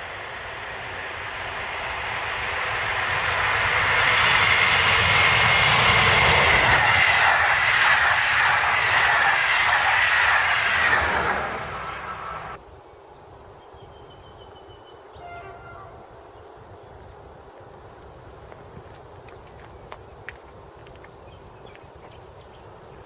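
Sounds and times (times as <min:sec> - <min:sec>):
high train whine: 0:00.0 - 0:12.6
train passing at speed: 0:00.0 - 0:12.6.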